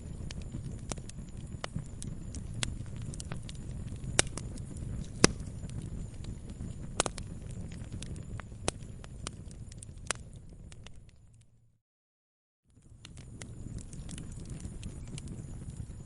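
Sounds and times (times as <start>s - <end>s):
campfire crackling: 0.0s - 11.5s, 12.7s - 16.0s
sharp fire pops: 0.0s - 11.5s, 12.8s - 16.0s
low rumble: 0.0s - 11.8s.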